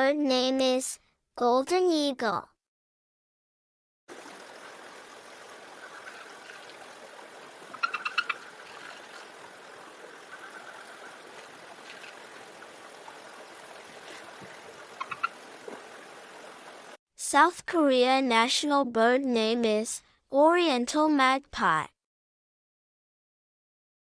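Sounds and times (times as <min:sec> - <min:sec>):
rushing water: 0:04.1 - 0:17.0.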